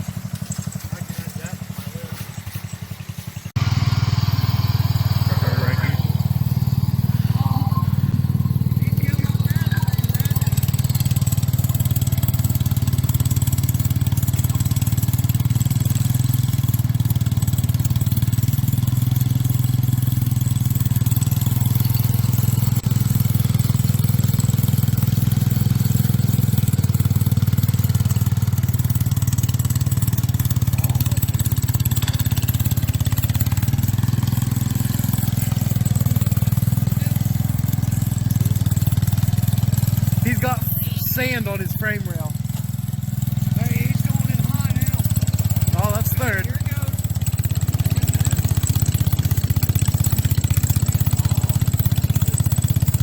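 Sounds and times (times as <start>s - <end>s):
garden tractor engine running: 0.0s - 53.0s.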